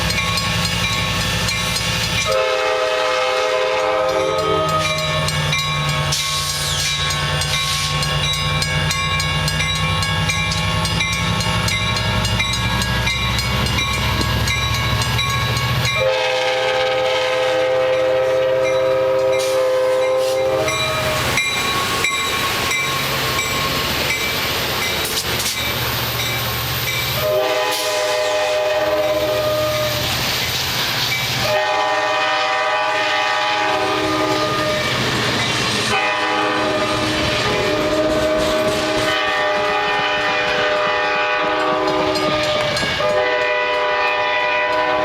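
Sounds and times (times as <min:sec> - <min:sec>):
train running noise: 0:00.0 - 0:45.0
locomotive air horn blasts: 0:02.2 - 0:05.2, 0:16.0 - 0:21.2, 0:27.2 - 0:30.0, 0:31.4 - 0:34.9, 0:35.9 - 0:45.0.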